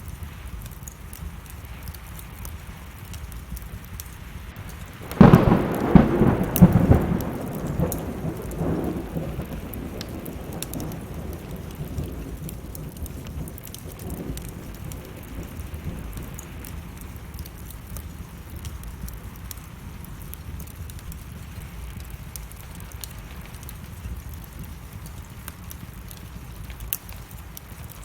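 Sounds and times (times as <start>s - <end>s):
steady rain: 0.0s - 28.0s
wood fire crackling: 0.0s - 28.0s
thunderclap rolling: 4.5s - 17.9s.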